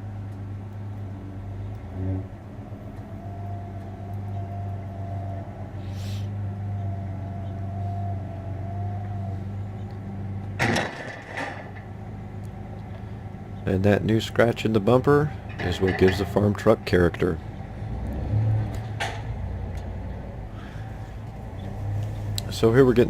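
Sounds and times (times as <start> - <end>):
truck engine idling: 0.0 - 23.0
loud clatter: 10.6 - 12.0.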